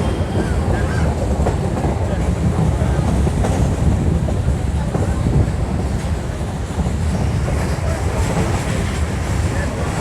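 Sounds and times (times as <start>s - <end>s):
train carriage rumbling on rails: 0.0s - 10.0s.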